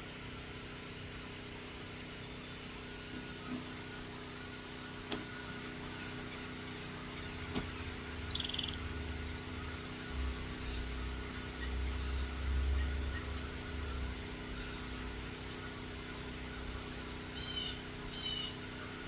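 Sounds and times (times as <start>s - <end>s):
machine droning hum: 0.0s - 19.0s
sharp clicks: 5.1s - 5.3s.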